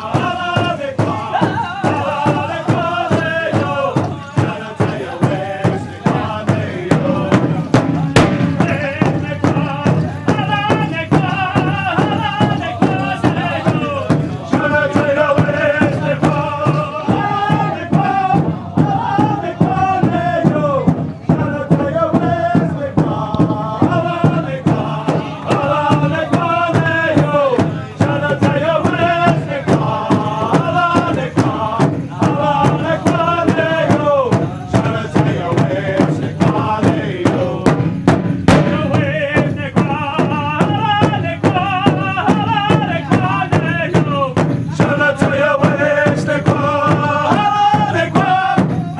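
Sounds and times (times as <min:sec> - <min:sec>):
large drum beating: 0:00.0 - 0:48.9
singers chanting: 0:00.0 - 0:48.9.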